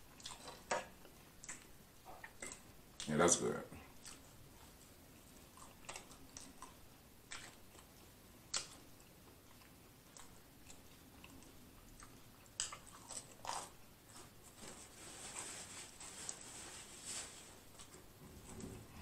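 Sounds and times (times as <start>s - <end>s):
chewing mouth sounds: 5.4s - 14.4s.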